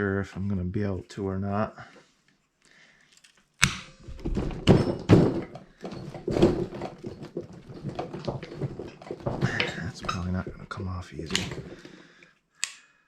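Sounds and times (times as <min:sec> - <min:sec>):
metal knocking and clunking: 0:04.0 - 0:12.0.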